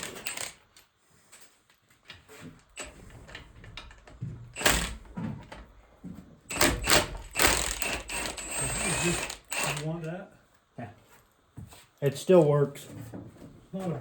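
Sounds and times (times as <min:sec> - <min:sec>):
heavy metal parts clunking: 0:02.2 - 0:09.9.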